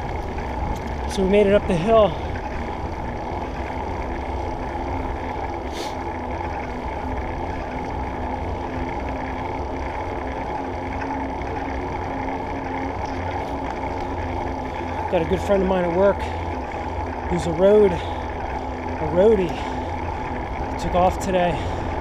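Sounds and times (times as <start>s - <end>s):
bicycle tires rolling: 0.0s - 22.0s.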